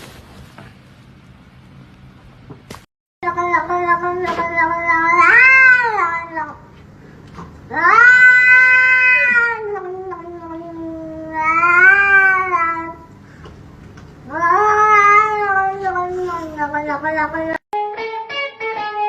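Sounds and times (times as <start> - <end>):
cat yowling meows: 3.2 - 6.6, 7.7 - 13.1, 14.3 - 17.0.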